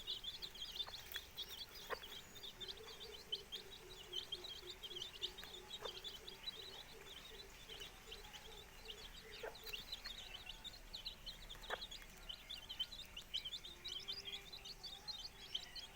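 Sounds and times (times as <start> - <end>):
hen clucking: 0.0 - 13.3
chicks peeping: 0.0 - 15.9.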